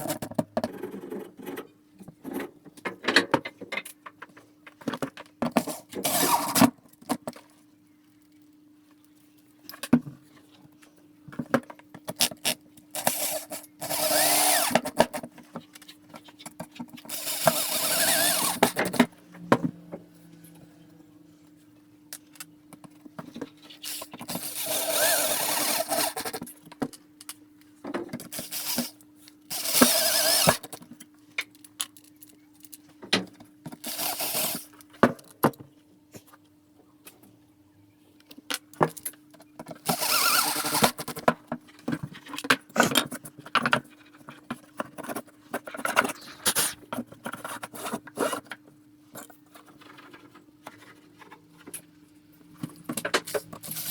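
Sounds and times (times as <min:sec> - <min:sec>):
power drill bursts: 0:13.0 - 0:14.8, 0:17.1 - 0:18.9, 0:29.5 - 0:30.6, 0:39.9 - 0:41.0
steady low hum: 0:17.2 - 0:22.8.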